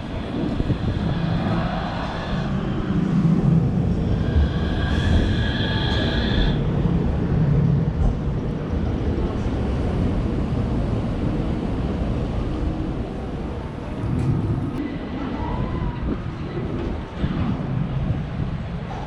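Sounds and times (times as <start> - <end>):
high whine: 0.0 - 7.3
train rumbling: 0.0 - 19.0.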